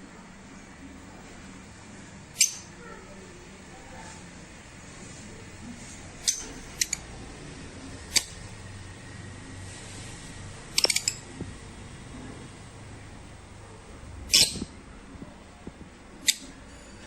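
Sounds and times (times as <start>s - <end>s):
sharp clicks and clinks: 10.8s - 11.2s.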